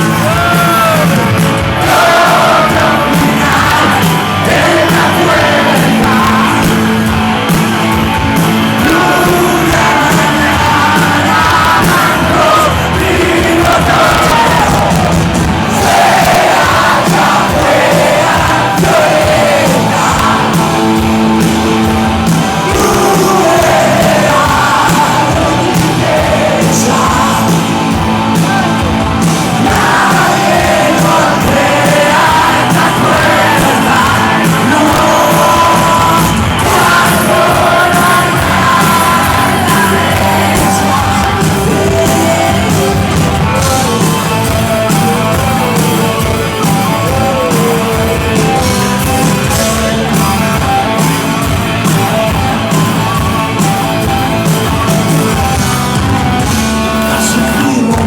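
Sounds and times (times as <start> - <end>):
person singing: 0.0 - 53.3, 56.9 - 58.0
rock band playing live: 0.0 - 58.0.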